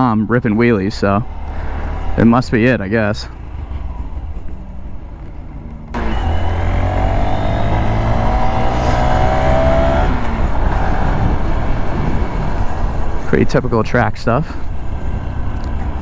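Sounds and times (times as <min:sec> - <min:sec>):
car engine accelerating hard: 0:00.4 - 0:16.0
even rushing noise: 0:05.9 - 0:14.9.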